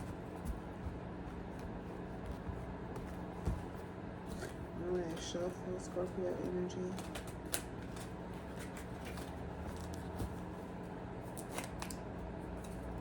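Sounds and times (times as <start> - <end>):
low steady hum: 0.0 - 13.0
cards being shuffled: 5.9 - 13.0.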